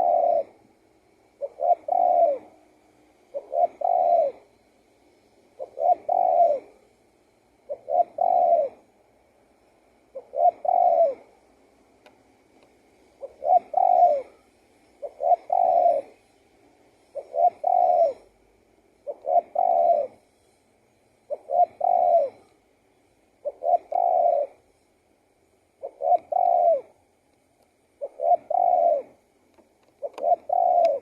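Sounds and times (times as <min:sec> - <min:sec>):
dove cooing: 0:00.0 - 0:00.6, 0:01.3 - 0:04.6, 0:05.5 - 0:06.9, 0:07.6 - 0:09.0, 0:10.1 - 0:11.4, 0:13.1 - 0:16.2, 0:17.0 - 0:18.4, 0:19.0 - 0:20.2, 0:21.3 - 0:22.6, 0:23.4 - 0:24.6, 0:25.8 - 0:27.0, 0:28.0 - 0:29.3, 0:29.9 - 0:31.0.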